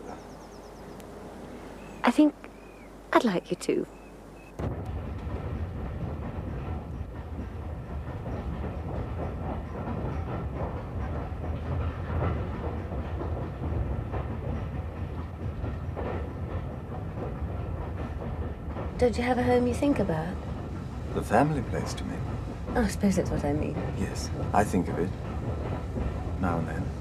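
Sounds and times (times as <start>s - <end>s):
railway carriage rumbling on track: 0.0s - 27.0s
wheels clattering over rails: 4.5s - 27.0s.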